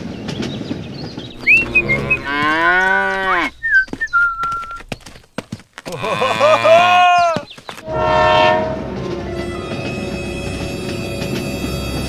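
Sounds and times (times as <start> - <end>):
lowing animal-like call: 1.3 - 5.2
short whistle-like tones: 1.3 - 5.2.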